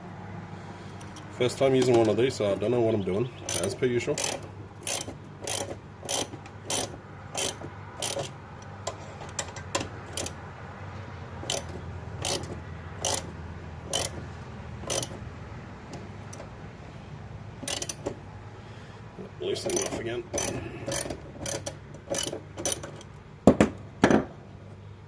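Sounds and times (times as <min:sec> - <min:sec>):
ratchet wrench clicking: 0:03.4 - 0:08.4, 0:10.1 - 0:10.4, 0:11.4 - 0:13.3, 0:13.9 - 0:14.2, 0:14.8 - 0:15.2, 0:17.6 - 0:18.0, 0:19.7 - 0:23.2.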